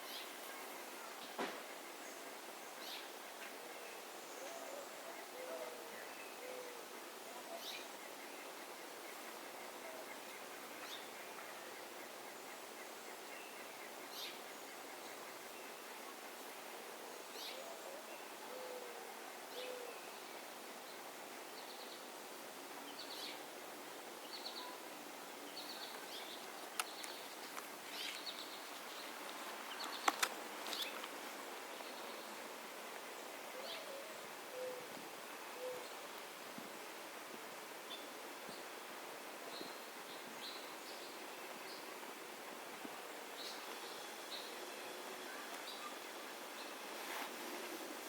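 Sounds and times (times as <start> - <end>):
faint hiss: 0.0 - 48.0
songbirds chirping: 0.0 - 48.0
sharp clicks: 29.9 - 30.4.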